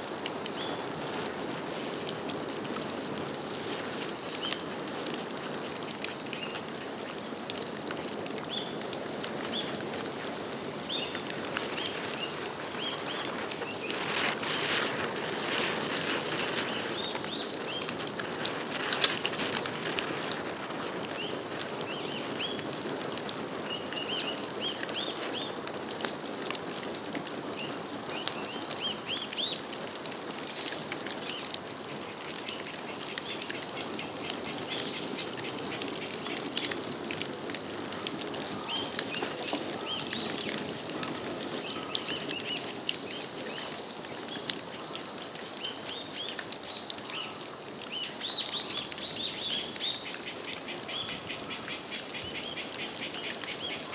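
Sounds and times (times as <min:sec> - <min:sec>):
bonfire crackling: 0:00.0 - 0:53.9
sharp pops from fire: 0:11.3 - 0:21.0.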